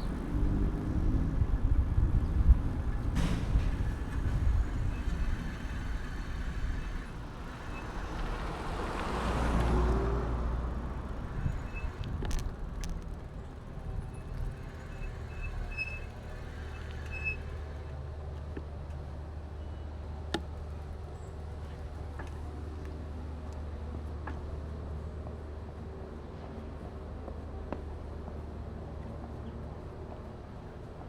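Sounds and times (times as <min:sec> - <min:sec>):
passing vehicle: 0:00.0 - 0:18.0
low traffic rumble: 0:00.0 - 0:31.0
bicycle clicks and rattles: 0:11.1 - 0:15.3.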